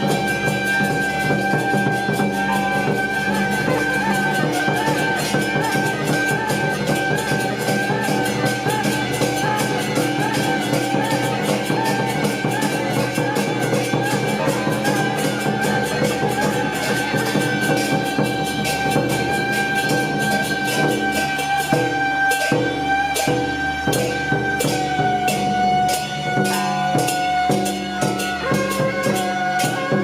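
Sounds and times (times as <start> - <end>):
drums and cymbals beat: 0.0 - 30.0.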